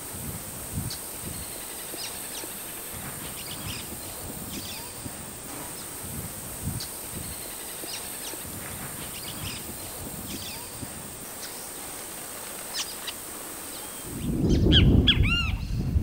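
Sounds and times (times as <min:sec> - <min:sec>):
low rumble of wind: 0:00.0 - 0:16.0
bird chip calls: 0:06.8 - 0:12.0, 0:12.6 - 0:15.8.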